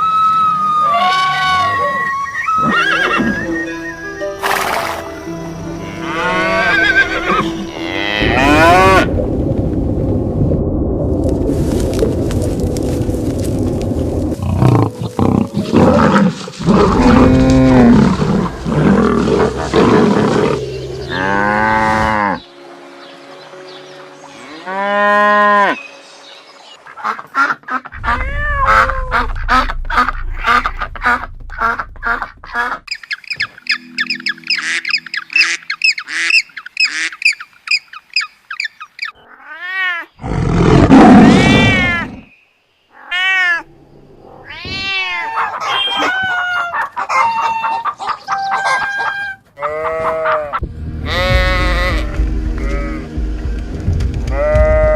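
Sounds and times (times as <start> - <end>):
pitched animal calls: 27.8 - 37.4, 44.4 - 53.0.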